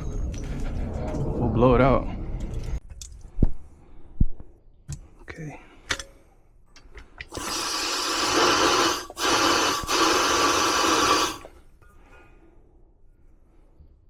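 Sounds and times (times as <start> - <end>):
gas hissing through pipe: 7.2 - 11.6.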